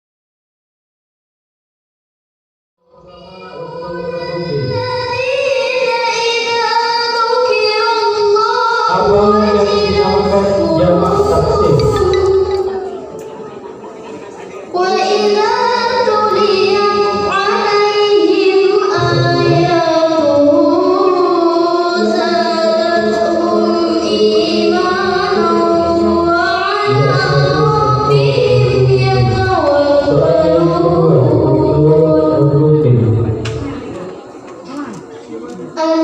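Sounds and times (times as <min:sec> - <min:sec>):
woman singing: 0:02.9 - 0:13.1, 0:14.8 - 0:32.8
lower accompanying part: 0:08.9 - 0:13.7.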